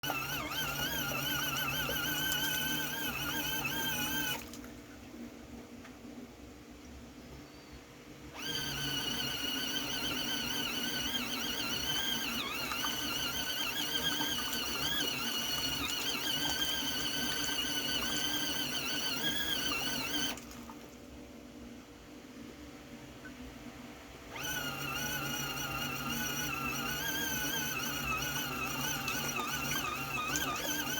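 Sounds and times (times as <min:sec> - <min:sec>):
small electric motor whining: 0:00.0 - 0:04.5, 0:08.3 - 0:20.4, 0:24.3 - 0:30.9.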